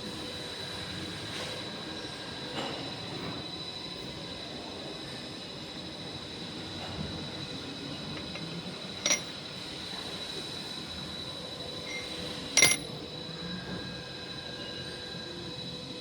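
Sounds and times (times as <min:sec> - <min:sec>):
faint high whines: 0:07.4 - 0:16.0.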